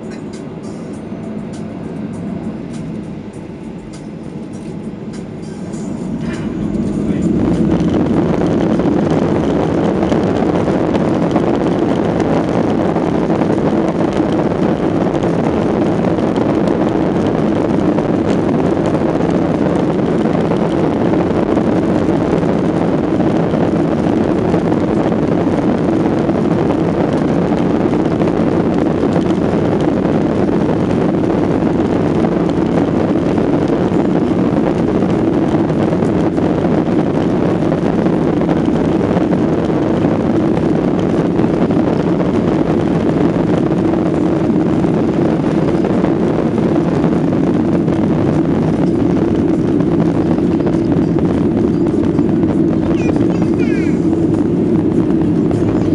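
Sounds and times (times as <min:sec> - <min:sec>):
airplane cabin engine rumble: 0:00.0 - 0:55.9.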